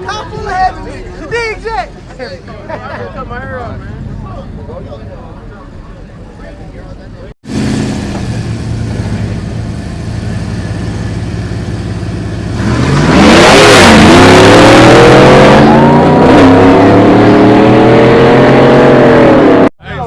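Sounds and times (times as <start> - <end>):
car engine revving: 7.4 - 19.7.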